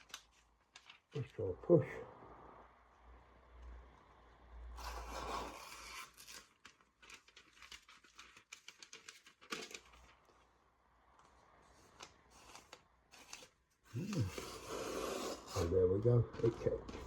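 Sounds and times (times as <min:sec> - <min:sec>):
paper rustle: 0:00.0 - 0:01.4, 0:04.8 - 0:10.5, 0:11.2 - 0:17.0
knife cutting paper: 0:04.8 - 0:10.0, 0:11.9 - 0:15.8.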